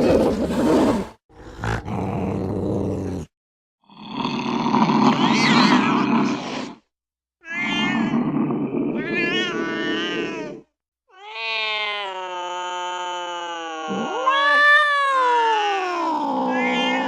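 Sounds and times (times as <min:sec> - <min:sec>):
cat yowling: 0:07.4 - 0:08.1, 0:09.0 - 0:17.0.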